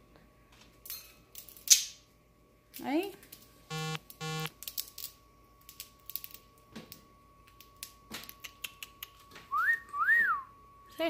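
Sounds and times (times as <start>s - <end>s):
short beep: 3.7s - 4.5s.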